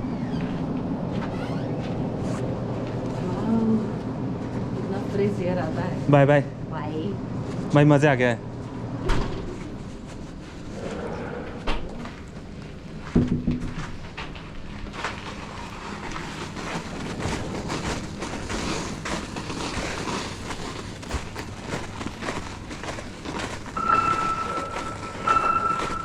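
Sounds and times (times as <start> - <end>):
bike crunching over snow: 13.8 - 26.0.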